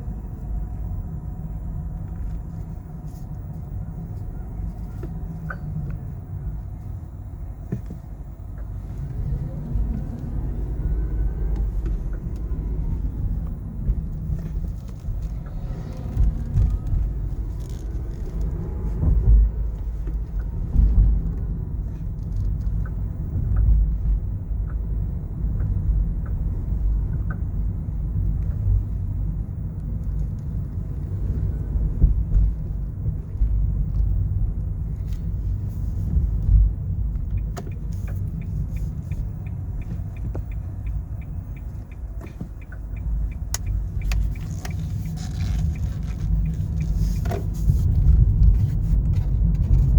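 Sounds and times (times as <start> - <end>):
car road rumble inside cabin: 0.0 - 49.9.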